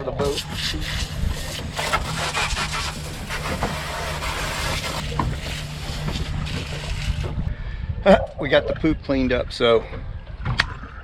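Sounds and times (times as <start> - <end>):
low steady hum: 0.0 - 11.0
scrubbing and rinsing hiss: 0.2 - 7.4.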